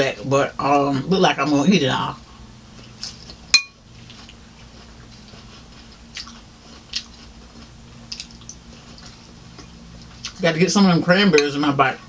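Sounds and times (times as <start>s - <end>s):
low steady hum: 0.0s - 12.0s
chewing lettuce: 2.7s - 10.6s.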